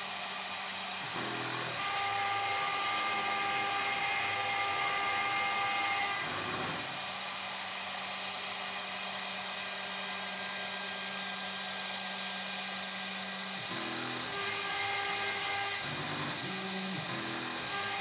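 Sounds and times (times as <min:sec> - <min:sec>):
router spindle cutting plastic sheet: 0:00.0 - 0:18.0.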